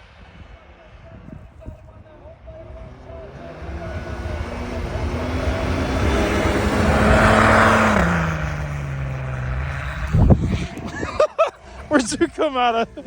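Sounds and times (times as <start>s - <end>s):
tyres rushing through snow: 2.1s - 13.0s
engine running under load: 2.5s - 13.0s.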